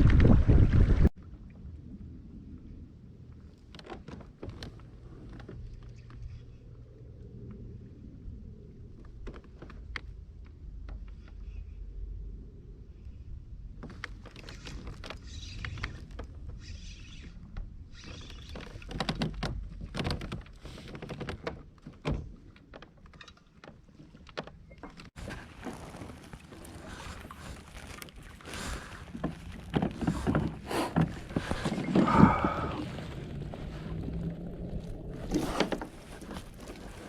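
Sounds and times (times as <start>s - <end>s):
water splashing: 25.2s - 37.0s.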